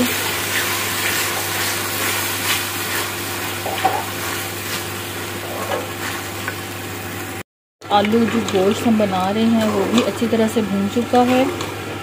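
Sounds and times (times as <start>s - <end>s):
oil sizzling: 0.0s - 7.4s.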